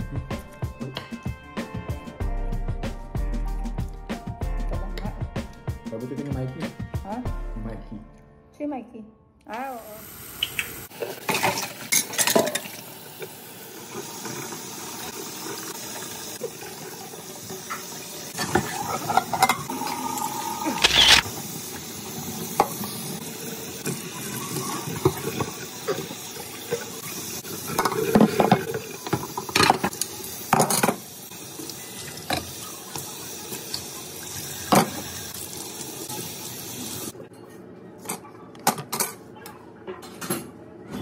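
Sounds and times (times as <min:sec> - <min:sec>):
dishes and cutlery clattering: 0:11.2 - 0:12.7, 0:18.4 - 0:19.7, 0:27.7 - 0:29.9.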